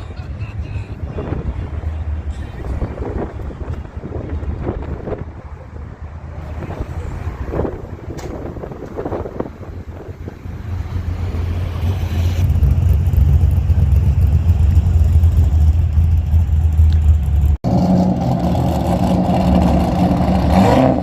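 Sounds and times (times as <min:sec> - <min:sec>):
car engine rumbling by: 0:00.0 - 0:21.0
higher-pitched car engine: 0:09.8 - 0:21.0.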